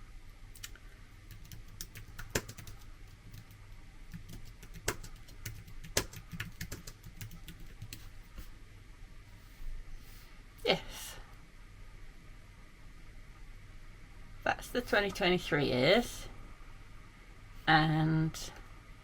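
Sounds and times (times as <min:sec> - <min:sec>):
typing on computer keyboard: 0:00.6 - 0:08.1.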